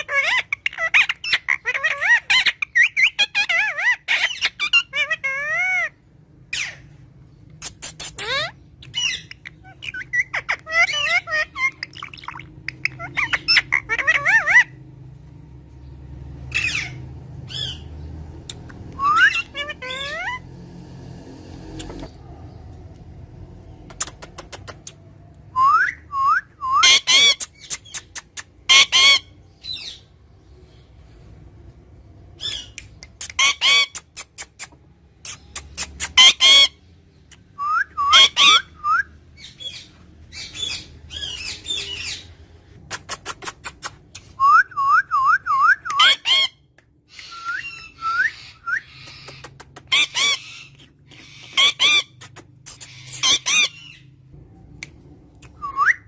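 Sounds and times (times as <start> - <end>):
parrot clicking whistling and squawking: 7.6 - 14.7, 23.9 - 25.0, 26.7 - 29.2, 32.4 - 36.7, 42.9 - 44.5, 45.2 - 53.9.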